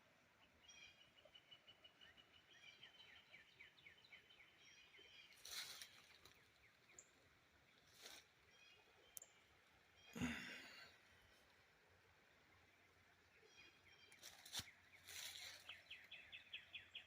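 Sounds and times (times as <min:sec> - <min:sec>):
faint songbird song: 0:00.0 - 0:17.0
rustling: 0:05.4 - 0:06.4, 0:14.2 - 0:15.7.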